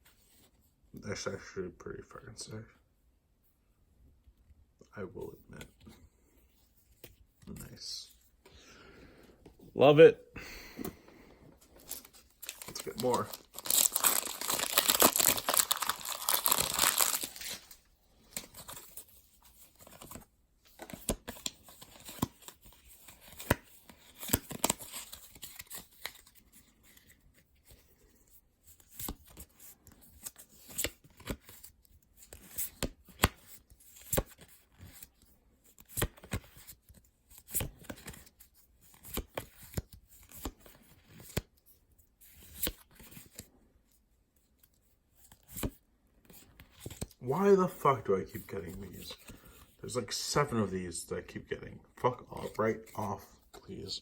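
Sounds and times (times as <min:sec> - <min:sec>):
foil pack crinkling and tearing: 0:11.8 - 0:17.8.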